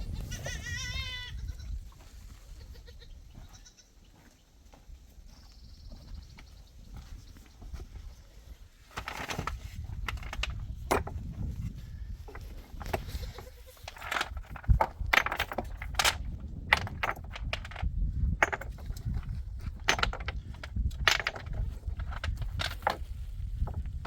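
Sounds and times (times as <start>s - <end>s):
hard objects clicking and knocking: 8.9s - 11.4s, 12.3s - 13.1s, 13.8s - 24.0s.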